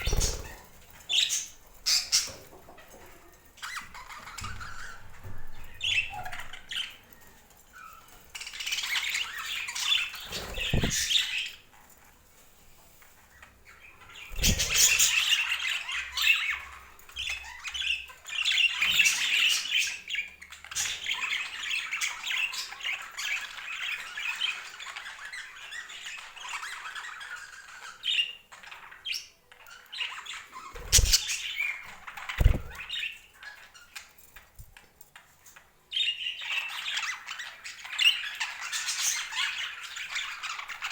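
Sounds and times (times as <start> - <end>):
budgerigars chattering and squawking: 0.0 - 2.9, 7.8 - 11.6, 13.7 - 34.1.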